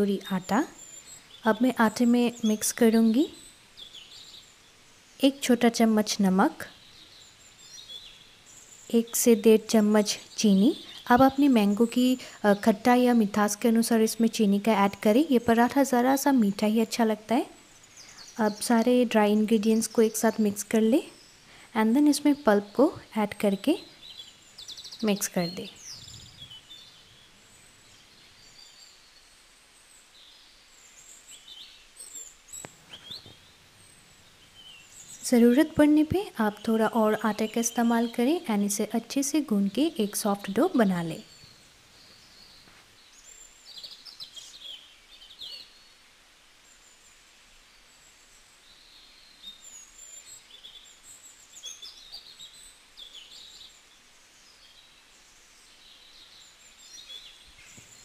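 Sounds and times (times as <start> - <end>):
birds twittering: 0.0 - 58.0
low steady hiss: 0.0 - 58.0
birds chirping and whistling: 23.4 - 29.4, 30.0 - 38.4.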